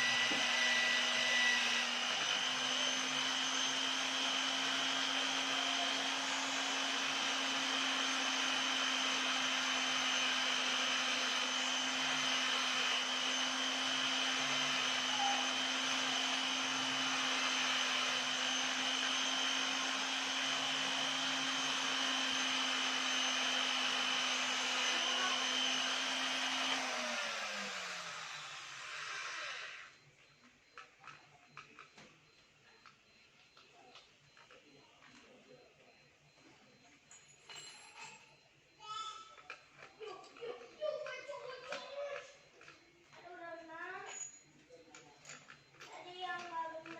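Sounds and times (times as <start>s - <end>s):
small electric tool motor: 0.0s - 30.0s.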